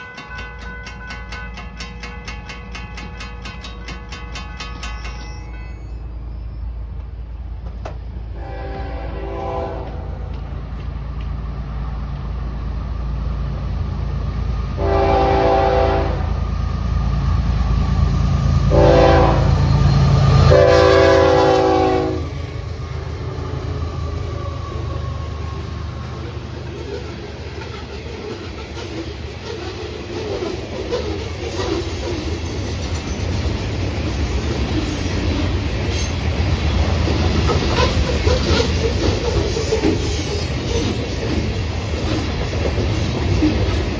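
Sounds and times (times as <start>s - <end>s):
diesel locomotives rumbling: 0.0s - 43.9s
train air horn blasts: 8.3s - 10.3s, 14.8s - 16.4s, 18.7s - 19.8s, 20.4s - 22.3s.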